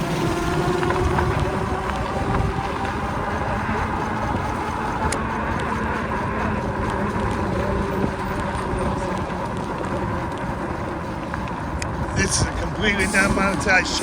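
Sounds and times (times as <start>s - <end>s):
wind noise: 0.0s - 14.0s.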